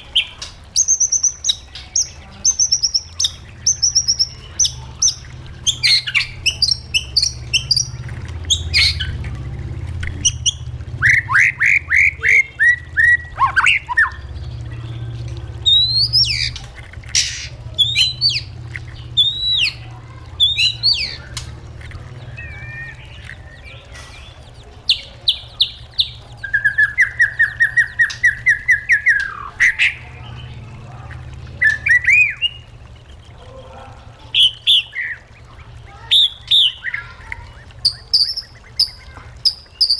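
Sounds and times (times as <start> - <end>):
bird singing whistled phrases: 10.2 - 14.6, 15.6 - 16.6, 17.2 - 18.5, 19.1 - 21.4, 22.2 - 30.0, 34.4 - 39.9.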